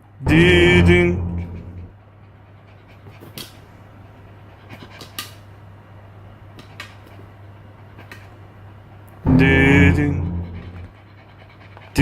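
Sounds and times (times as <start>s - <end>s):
steady low hum: 0.0s - 6.6s, 7.2s - 12.0s
dog panting softly: 1.3s - 5.8s, 6.5s - 9.2s, 10.3s - 12.0s.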